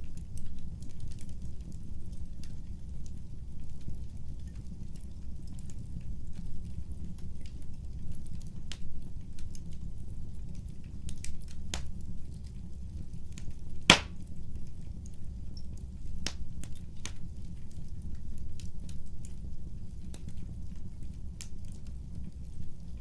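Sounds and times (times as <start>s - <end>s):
wood fire crackling: 0.0s - 23.0s
sharp crack from fire: 7.0s - 23.0s.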